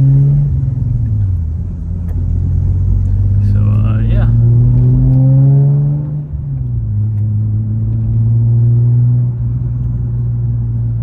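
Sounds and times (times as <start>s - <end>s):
car engine while driving: 0.0s - 11.0s.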